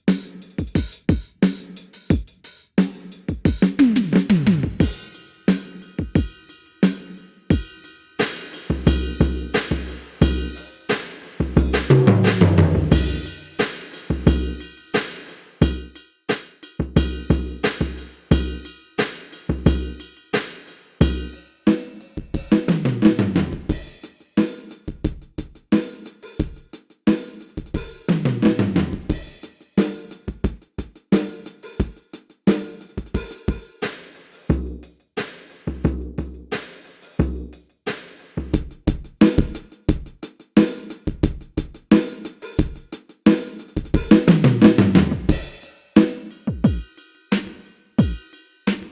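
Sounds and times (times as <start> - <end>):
drum kit groove: 0.0 - 48.9
drum fill falling in pitch: 8.2 - 14.5.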